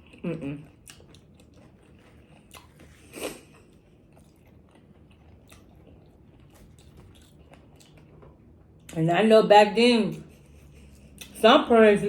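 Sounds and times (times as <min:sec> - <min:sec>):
person chewing and crunching: 0:00.0 - 0:09.0.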